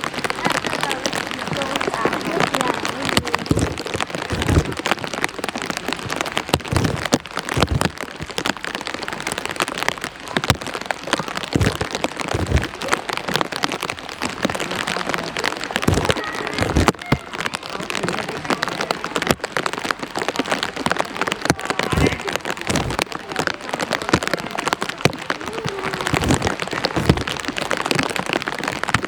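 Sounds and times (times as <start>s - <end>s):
heavy rain pouring: 0.0s - 29.0s
dull thumps: 2.7s - 9.0s, 10.4s - 14.6s, 15.8s - 17.3s, 20.9s - 23.2s, 24.1s - 28.1s.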